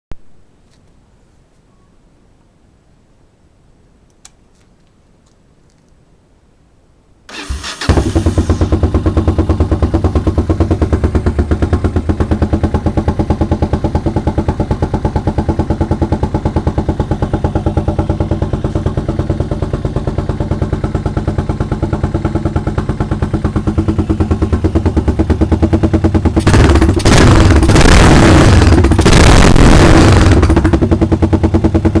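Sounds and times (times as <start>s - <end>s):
motorcycle engine revving: 7.3s - 32.0s
motorcycle engine starting and idling: 7.3s - 32.0s.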